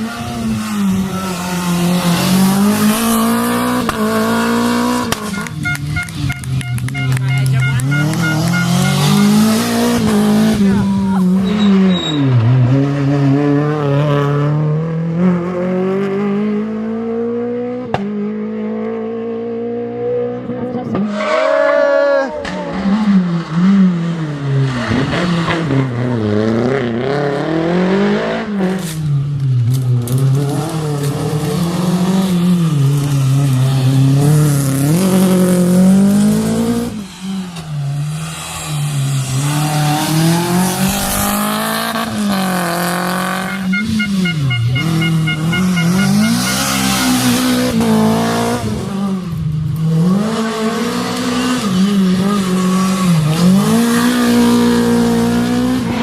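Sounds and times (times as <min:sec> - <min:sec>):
rally car engine revving: 0:00.0 - 0:56.0
rapid high beeps: 0:43.4 - 0:47.3.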